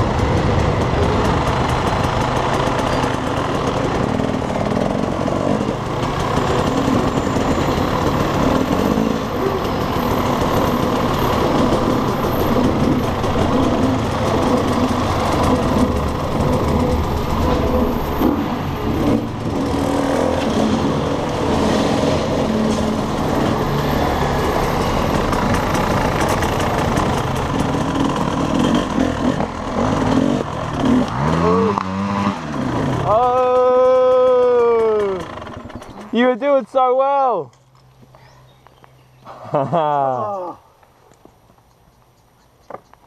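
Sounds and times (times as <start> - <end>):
motorcycle engine revving: 0.0 - 36.4
tyres on dirt: 0.0 - 43.0.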